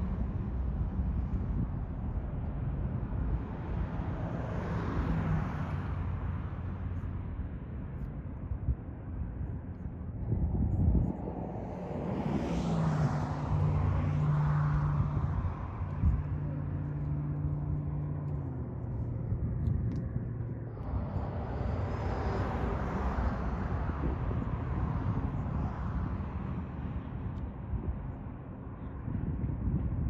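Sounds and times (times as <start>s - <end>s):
outdoor rushing noise: 0.0s - 30.0s
engine humming: 13.6s - 26.6s.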